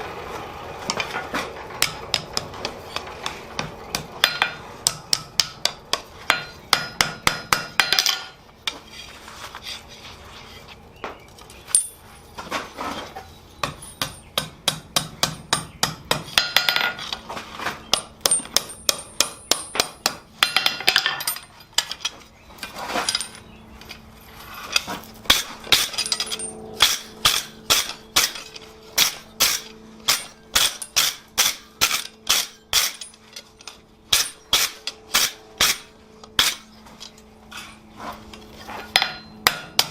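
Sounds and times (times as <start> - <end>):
hammer striking hot steel on anvil: 1.8 - 8.4, 13.6 - 17.0, 17.9 - 21.4, 25.3 - 33.2, 34.1 - 36.7, 38.9 - 39.9.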